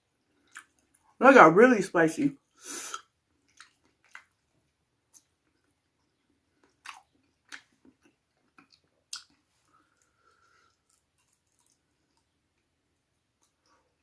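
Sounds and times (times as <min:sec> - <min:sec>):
person chewing: 0:00.2 - 0:01.2, 0:02.6 - 0:12.7.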